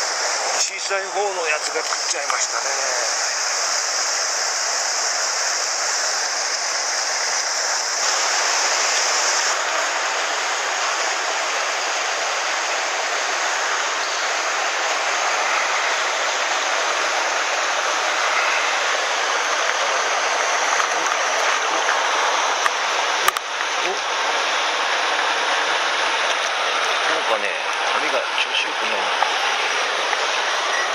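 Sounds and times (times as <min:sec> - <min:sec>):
stream rushing over rocks: 0:00.0 - 0:30.9.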